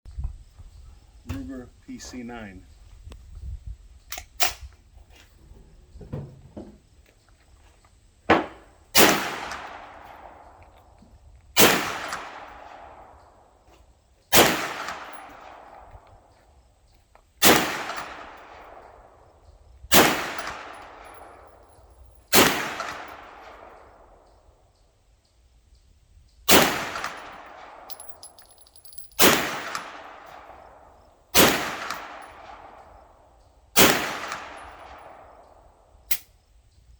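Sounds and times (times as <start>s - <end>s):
rifle shots with echo: 8.3s - 10.6s, 11.6s - 13.5s, 14.3s - 16.3s, 17.4s - 19.3s, 19.9s - 24.2s, 26.5s - 28.2s, 29.2s - 35.9s.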